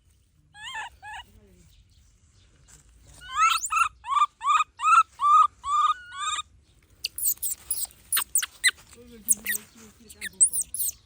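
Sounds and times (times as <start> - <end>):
baby monkey calling: 0.6 - 1.3, 3.2 - 11.0
thin high squeaks: 7.0 - 11.0.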